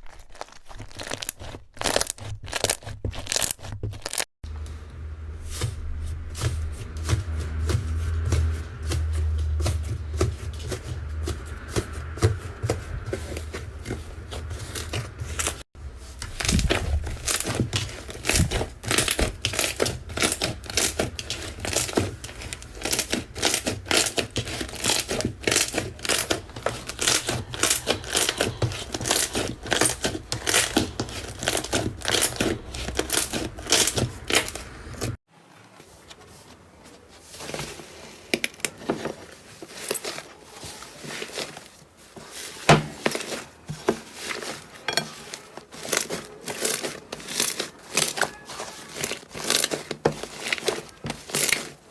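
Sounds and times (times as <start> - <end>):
slime crackling and popping: 0.0 - 4.3, 16.2 - 35.2.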